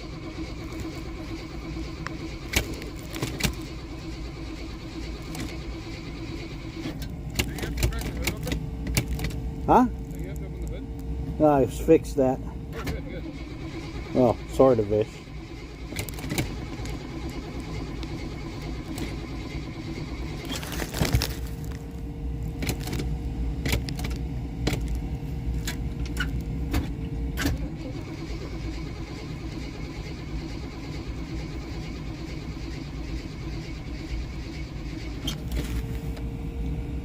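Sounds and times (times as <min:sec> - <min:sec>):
car engine low rumble: 0:00.0 - 0:37.0
thin steady whine: 0:00.0 - 0:37.0
sharp clicks: 0:06.8 - 0:09.4.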